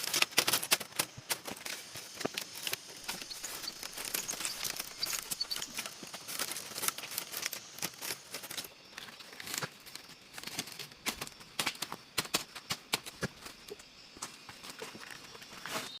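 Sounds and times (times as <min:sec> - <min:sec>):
dry leaves and twigs crackling: 0:00.0 - 0:16.0.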